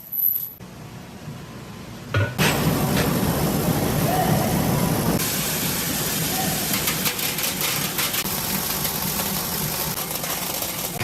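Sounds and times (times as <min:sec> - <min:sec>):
machinery hum: 0:00.6 - 0:06.8.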